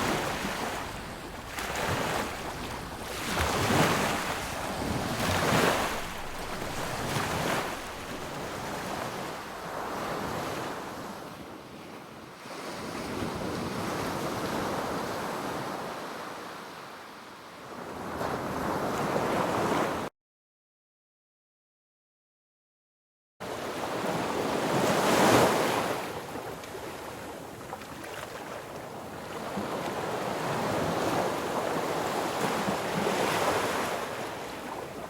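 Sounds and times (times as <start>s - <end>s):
sea waves breaking on beach: 0.0s - 11.4s, 23.5s - 35.0s.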